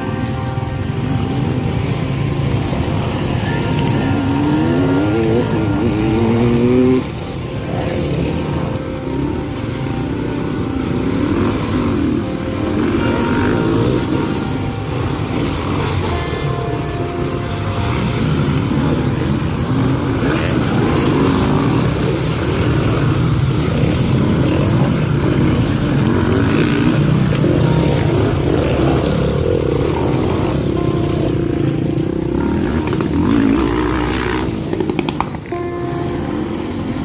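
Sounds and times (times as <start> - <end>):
dirt bike engines revving: 0.0 - 37.0.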